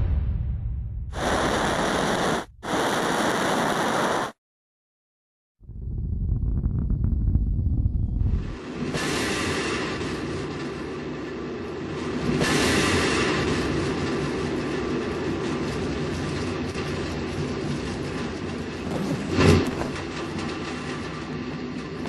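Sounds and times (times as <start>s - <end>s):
rumbling vehicle noise: 5.6s - 22.0s.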